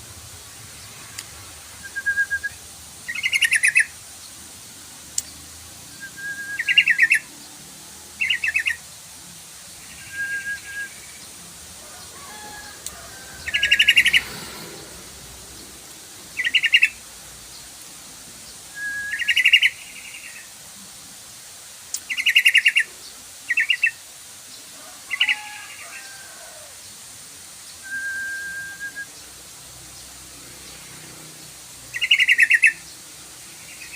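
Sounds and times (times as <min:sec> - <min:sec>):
faint steady hiss: 0:00.0 - 0:33.9
thin bird whistle: 0:01.8 - 0:03.9, 0:05.9 - 0:07.3, 0:09.8 - 0:11.2, 0:18.7 - 0:20.4, 0:27.8 - 0:29.3
bird chattering calls: 0:03.1 - 0:03.9, 0:12.6 - 0:15.7, 0:16.3 - 0:17.0, 0:31.9 - 0:32.9.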